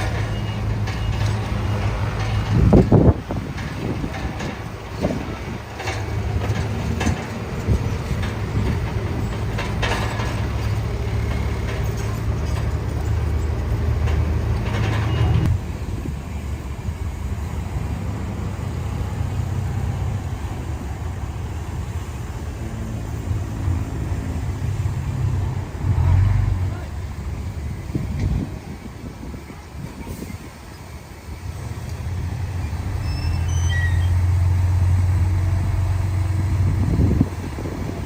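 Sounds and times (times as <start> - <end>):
clanking and rattling: 0.0 - 16.4
heavy diesel machinery running: 0.0 - 38.0.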